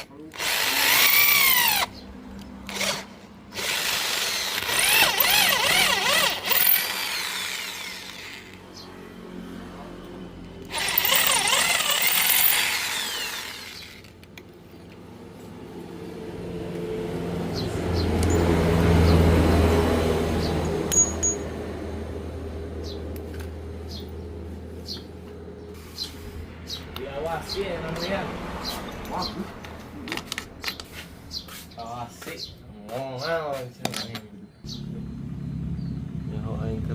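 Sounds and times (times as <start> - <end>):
electric hand drill whirring: 0.0 - 1.9, 2.6 - 8.9, 10.6 - 14.4.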